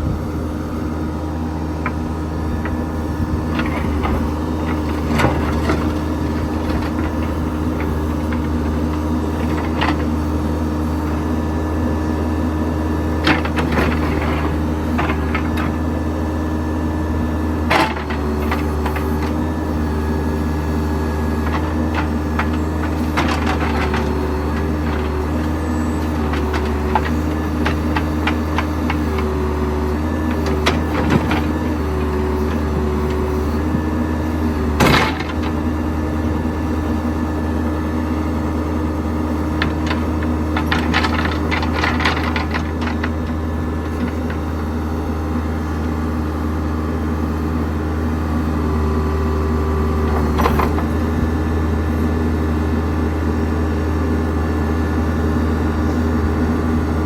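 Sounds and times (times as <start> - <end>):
diesel engine running: 0.0 - 57.0
machine knocks and clanks: 21.4 - 29.4, 34.7 - 35.7, 39.6 - 44.5.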